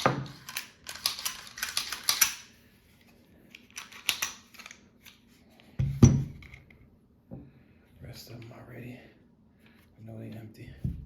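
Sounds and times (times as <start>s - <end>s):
pistol metallic clicks and clacks: 0.0s - 2.5s, 3.7s - 4.8s.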